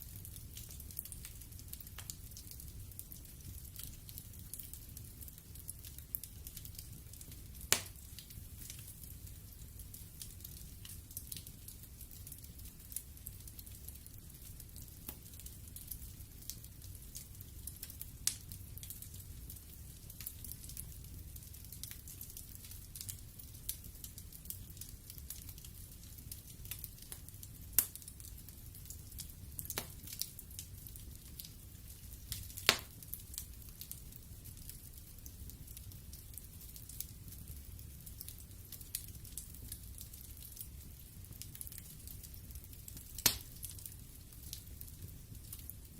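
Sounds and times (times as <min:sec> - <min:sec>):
wood fire crackling: 0:00.0 - 0:45.9
burning wood popping: 0:00.2 - 0:11.6, 0:24.5 - 0:45.8.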